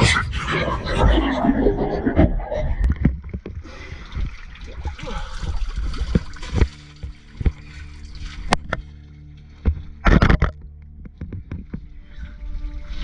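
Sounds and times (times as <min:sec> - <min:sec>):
splashing in water: 0:03.0 - 0:10.2.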